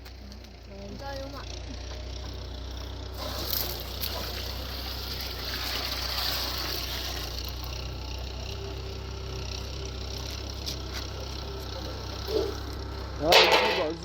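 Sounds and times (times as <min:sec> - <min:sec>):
tractor engine running: 0:00.0 - 0:14.0
water splashing onto ground: 0:03.2 - 0:07.8.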